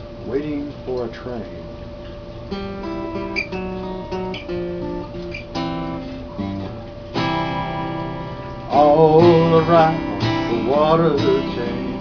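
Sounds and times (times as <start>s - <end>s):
acoustic guitar country blues: 2.5s - 12.0s.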